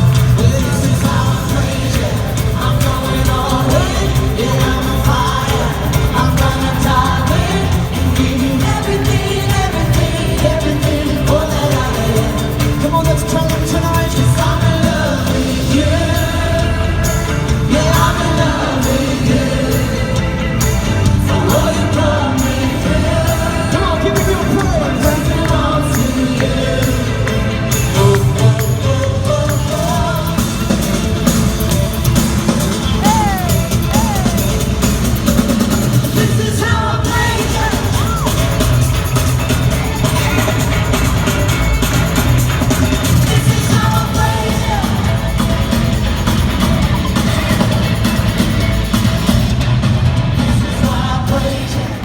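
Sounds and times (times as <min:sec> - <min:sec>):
person singing: 0:00.0 - 0:38.9, 0:42.8 - 0:45.5
steady drum beat: 0:00.0 - 0:52.0
worship band playing: 0:00.0 - 0:52.0.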